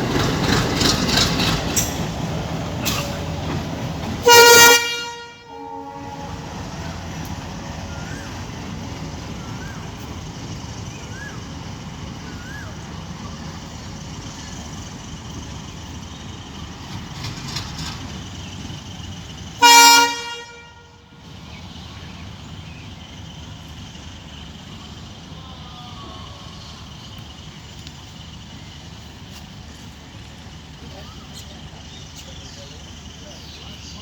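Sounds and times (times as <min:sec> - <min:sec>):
locomotive rumbling: 0:00.0 - 0:34.0
locomotive air horn blast: 0:04.2 - 0:06.9, 0:19.6 - 0:21.1.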